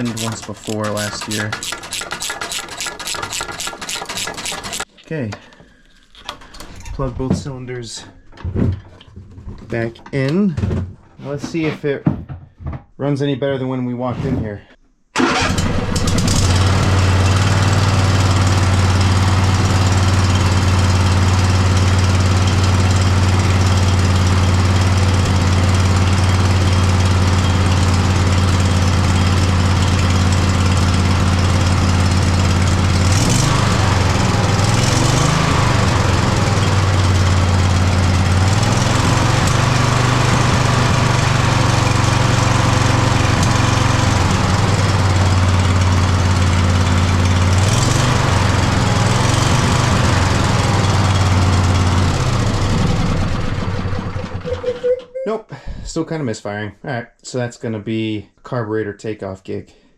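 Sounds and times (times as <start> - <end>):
mower engine misfiring: 0.0 - 4.9, 15.2 - 54.9.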